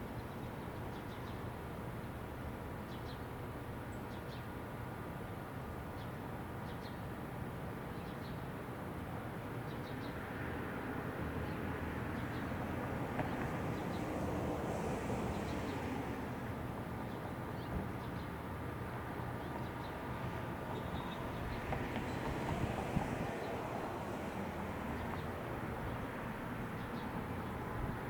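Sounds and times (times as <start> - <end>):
distant traffic rumble: 10.5 - 28.0.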